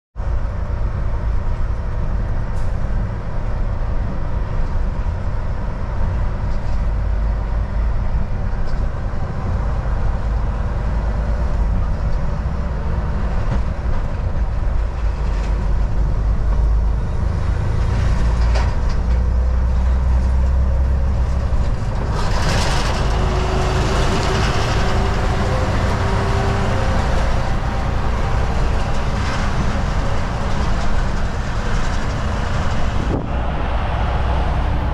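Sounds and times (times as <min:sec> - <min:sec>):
road rumble: 0:00.2 - 0:34.9
truck engine drone: 0:00.2 - 0:34.9
tyre and wind noise: 0:00.2 - 0:34.9.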